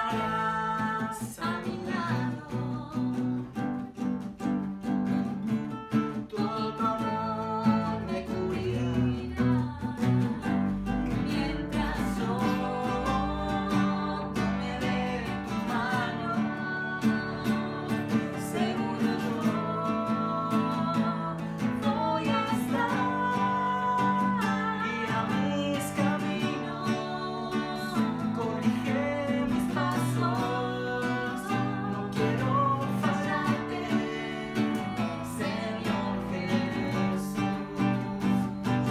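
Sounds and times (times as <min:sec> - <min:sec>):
person singing: 0:00.0 - 0:04.0, 0:05.1 - 0:38.9
acoustic guitar strumming: 0:00.0 - 0:38.9.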